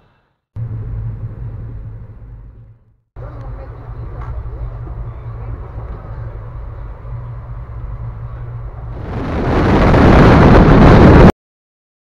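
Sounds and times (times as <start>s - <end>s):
train rumble and hum inside coach: 0.6s - 10.0s
wind and wheel-on-rail noise: 0.6s - 11.3s.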